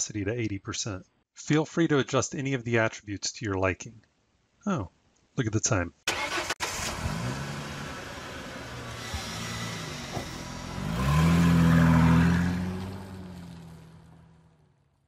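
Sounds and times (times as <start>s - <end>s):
car engine accelerating: 6.1s - 14.8s.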